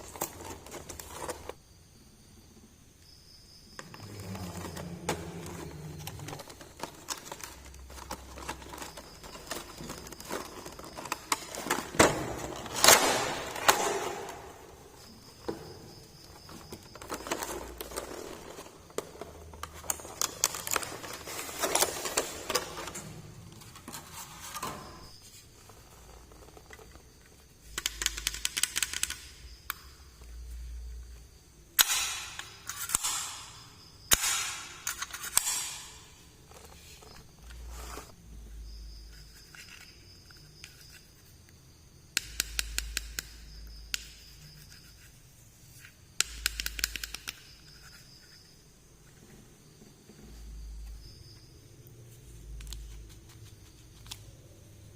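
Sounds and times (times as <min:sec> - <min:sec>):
small plastic parts clicking: 0:27.7 - 0:29.9, 0:46.2 - 0:47.9.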